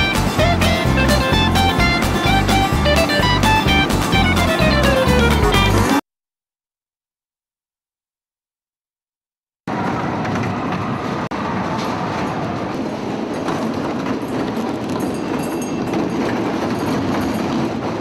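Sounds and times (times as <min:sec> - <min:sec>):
train wheels clattering on rails: 0:10.0 - 0:18.0.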